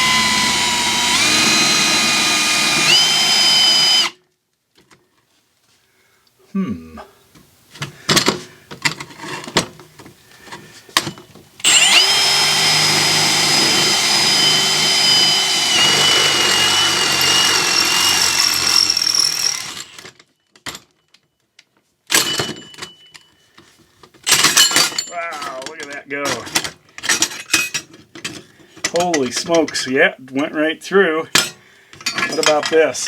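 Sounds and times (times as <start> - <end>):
power drill whining through steel: 0.0 - 4.2, 11.6 - 20.2.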